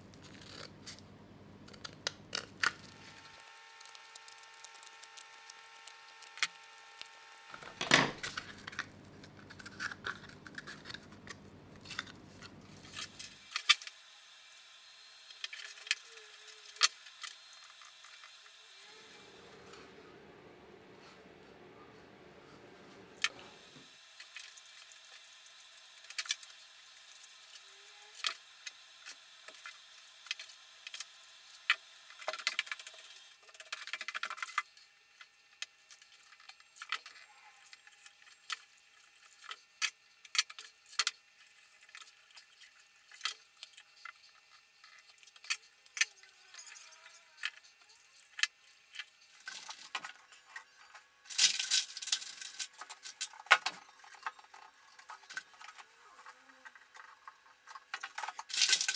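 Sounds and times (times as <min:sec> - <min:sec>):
rustling and scratching: 0:02.7 - 0:13.4, 0:41.4 - 0:58.9.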